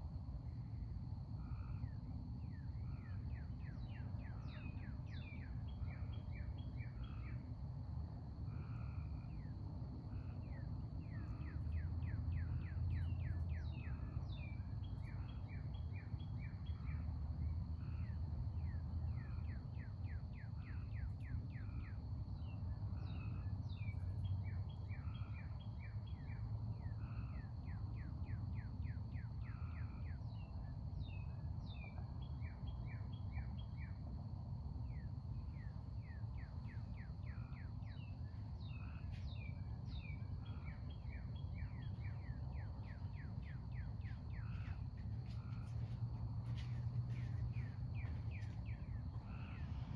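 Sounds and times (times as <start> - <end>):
songbirds chirping: 0.6 - 49.9.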